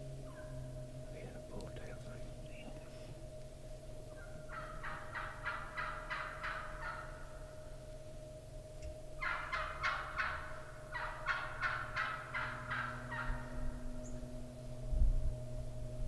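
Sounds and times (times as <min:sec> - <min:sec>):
turkey yelping: 0:00.2 - 0:00.7, 0:04.1 - 0:07.5, 0:09.2 - 0:14.2.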